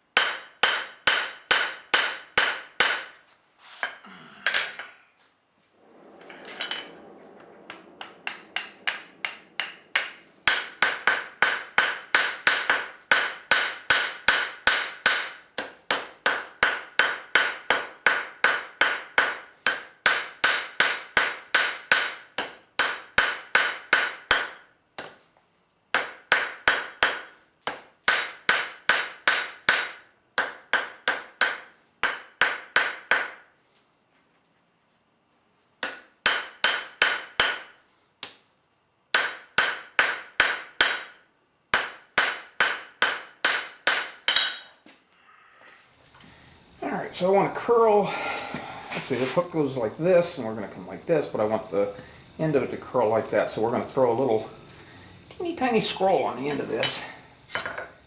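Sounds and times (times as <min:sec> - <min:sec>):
hammer striking steel on anvil: 0:00.1 - 0:05.0, 0:08.0 - 0:25.2, 0:25.9 - 0:33.5, 0:35.8 - 0:38.4, 0:39.1 - 0:44.9, 0:56.5 - 0:58.0.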